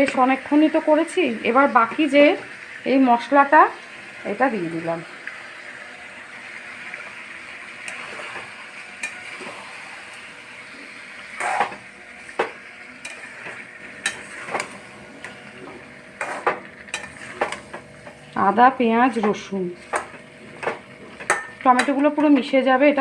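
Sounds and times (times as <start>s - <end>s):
food sizzling in hot oil: 0.0s - 23.0s
spatula scraping a pan: 7.8s - 18.3s.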